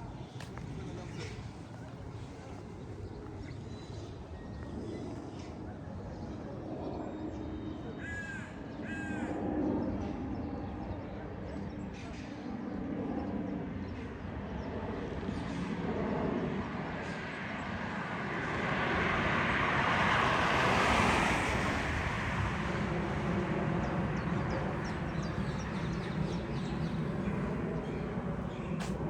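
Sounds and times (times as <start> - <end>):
low traffic hum: 16.4 - 29.0
vehicle passing: 18.8 - 29.0.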